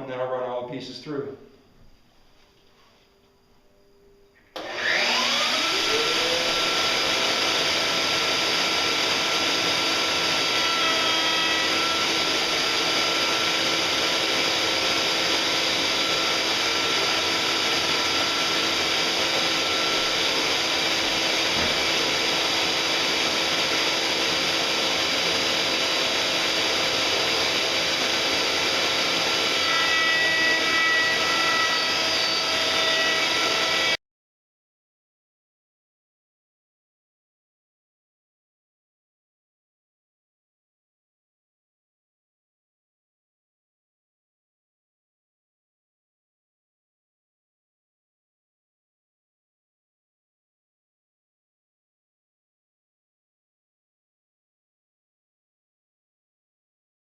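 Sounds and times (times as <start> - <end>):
router spinning with high whine: 4.5 - 34.0.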